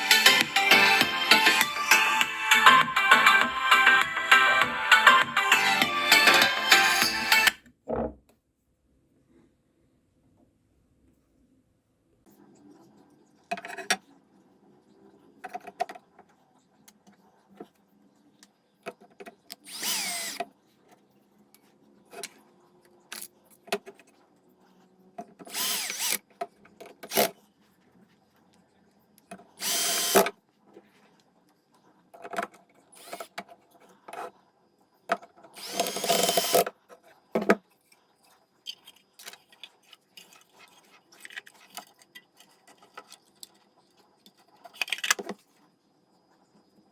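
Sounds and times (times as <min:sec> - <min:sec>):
power drill running: 0:19.7 - 0:20.4, 0:25.5 - 0:26.2, 0:29.6 - 0:30.3, 0:33.0 - 0:33.3, 0:35.6 - 0:36.7.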